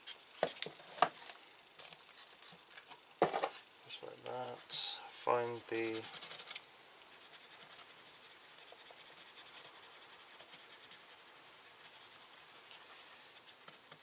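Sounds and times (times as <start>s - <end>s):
pencil scratching on paper: 5.7s - 14.0s.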